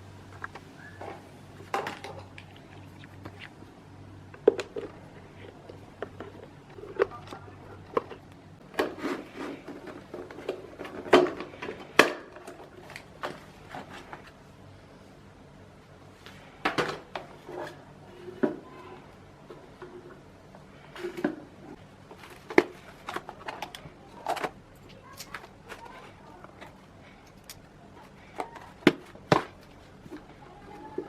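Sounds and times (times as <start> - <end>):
parts and tools clattering: 4.4 - 14.3, 20.9 - 31.0.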